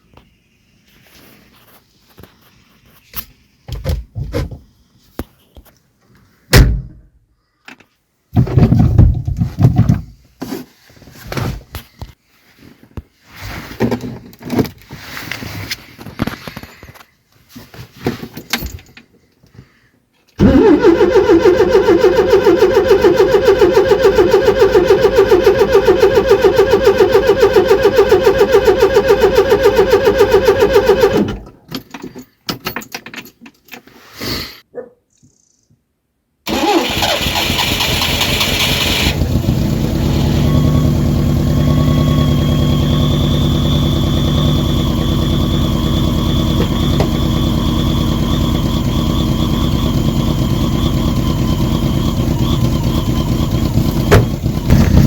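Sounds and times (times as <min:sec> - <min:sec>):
car engine running: 0:20.4 - 0:31.4, 0:36.5 - 0:55.0
engine starter cranking: 0:20.4 - 0:31.7, 0:36.5 - 0:55.0.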